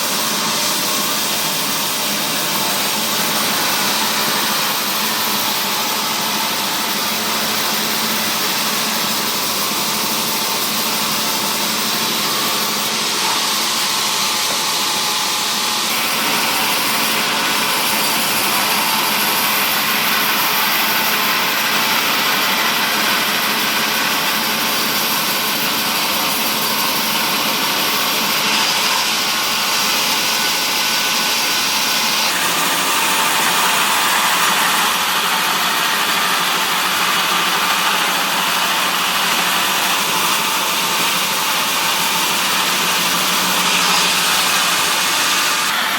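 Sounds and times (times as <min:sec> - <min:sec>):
sawmill machinery cutting wood: 0:00.0 - 0:45.9.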